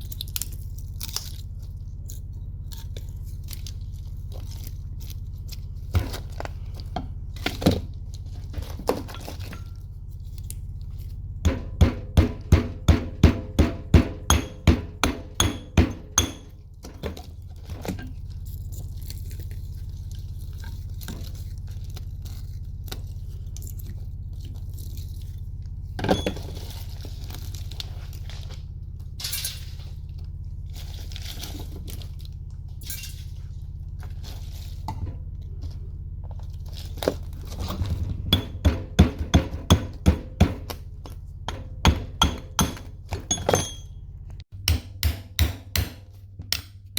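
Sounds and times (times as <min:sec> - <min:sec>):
steady low hum: 0:00.0 - 0:46.9
metal parts clinking: 0:43.3 - 0:44.0.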